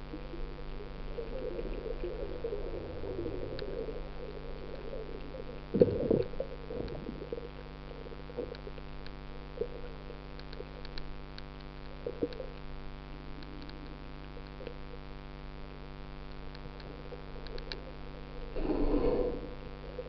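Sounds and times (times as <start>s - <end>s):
low hum with steady tones: 0.0s - 20.0s
faint clicks: 10.3s - 12.7s, 13.3s - 14.8s, 16.3s - 17.9s.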